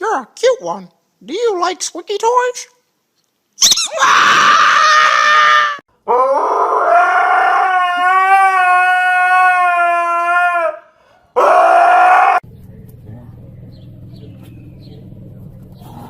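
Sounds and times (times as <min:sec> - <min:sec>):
dog howling: 0:03.9 - 0:12.5.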